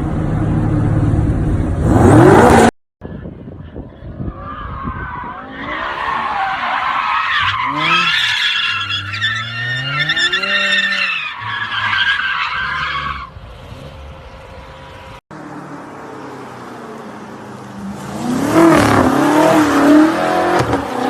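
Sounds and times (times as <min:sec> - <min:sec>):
car engine revving: 0:01.7 - 0:02.7.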